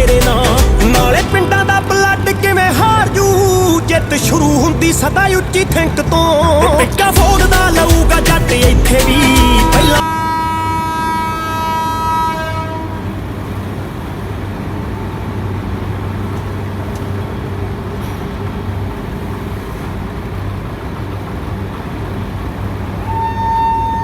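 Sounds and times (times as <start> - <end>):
tractor diesel engine running: 0.0 - 10.9, 13.2 - 23.1
horn-like steady tone: 9.2 - 13.3, 23.0 - 24.0.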